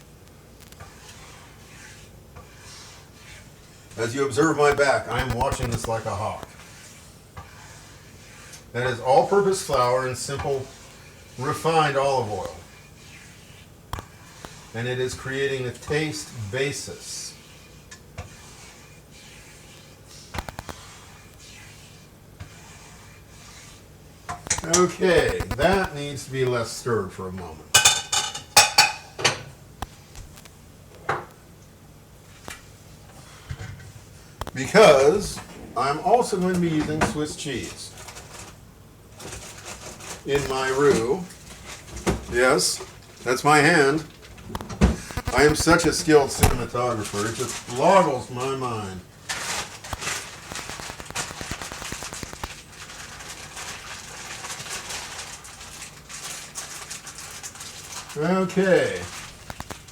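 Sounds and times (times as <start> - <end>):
roux sizzling in a pan: 0.4 - 26.0
sharp clicks: 24.5 - 25.9, 44.6 - 46.7.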